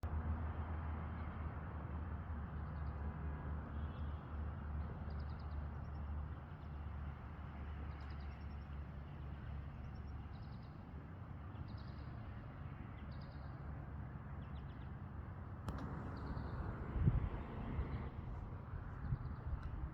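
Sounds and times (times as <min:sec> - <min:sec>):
steady low rumble: 0:15.7 - 0:19.9.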